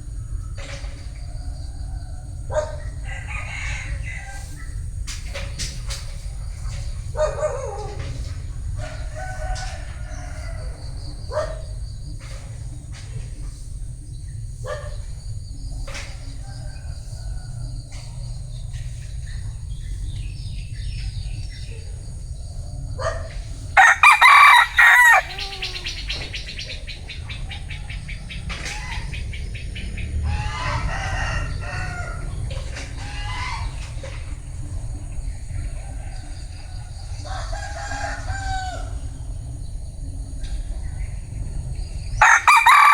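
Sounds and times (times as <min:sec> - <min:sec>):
chickens clucking: 0:00.0 - 0:42.9
rooster crowing: 0:01.3 - 0:04.8, 0:08.8 - 0:11.1, 0:23.8 - 0:26.2, 0:30.2 - 0:33.6, 0:37.2 - 0:39.2, 0:42.2 - 0:42.9.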